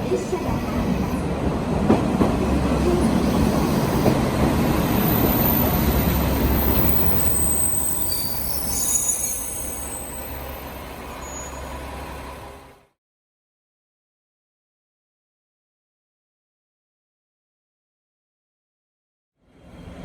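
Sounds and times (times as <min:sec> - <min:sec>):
train wheels rumbling on rails: 0:00.0 - 0:12.9
high squealing of wheels and brakes: 0:05.0 - 0:12.1.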